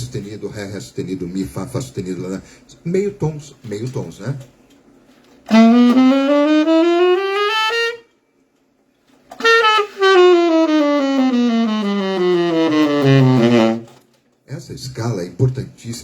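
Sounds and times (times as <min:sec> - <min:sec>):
saxophone playing scales: 0:05.5 - 0:08.1, 0:09.3 - 0:14.0.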